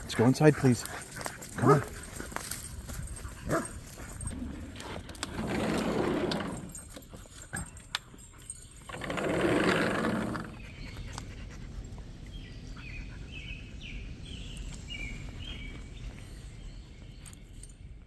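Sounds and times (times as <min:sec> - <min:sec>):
bird chirping: 0:07.5 - 0:17.9.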